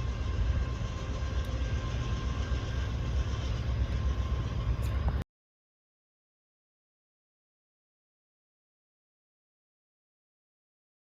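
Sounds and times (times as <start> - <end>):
faint thin whining tones: 0.0 - 5.2
train passing: 0.0 - 5.2.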